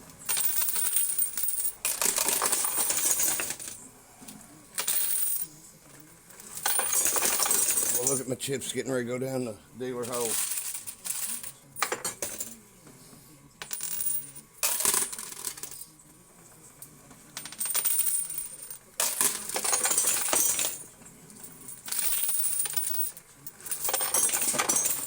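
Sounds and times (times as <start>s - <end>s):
coins clattering and clinking: 0.2s - 3.8s, 4.8s - 5.6s, 6.4s - 8.3s, 10.0s - 12.6s, 13.6s - 16.0s, 17.3s - 25.0s.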